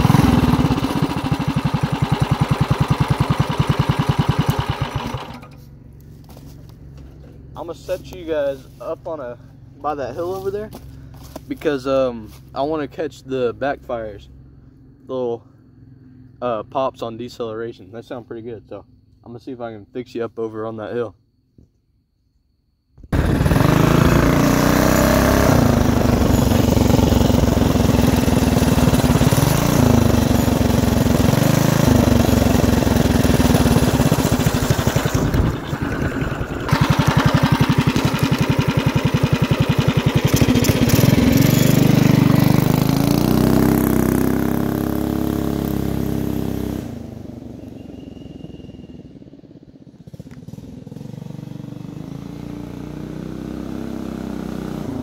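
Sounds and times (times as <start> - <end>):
mini bike engine passing: 0.0 - 5.7, 23.2 - 55.0.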